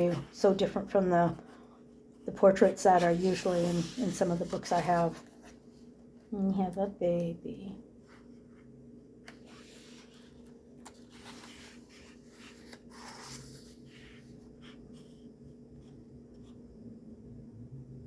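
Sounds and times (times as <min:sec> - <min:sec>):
faint steady hum: 0:00.0 - 0:18.0
paper pages rustling: 0:09.2 - 0:15.0.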